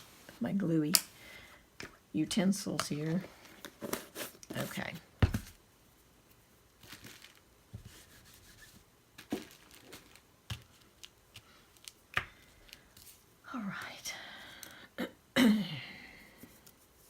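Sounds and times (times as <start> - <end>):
paper rustling and crinkling: 6.8 - 12.0.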